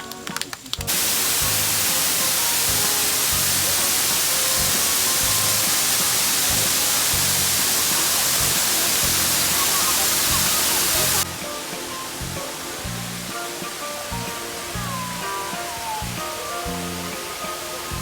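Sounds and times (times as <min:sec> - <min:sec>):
background music with low beat: 0:00.8 - 0:18.0
loud rushing hiss: 0:00.9 - 0:18.0.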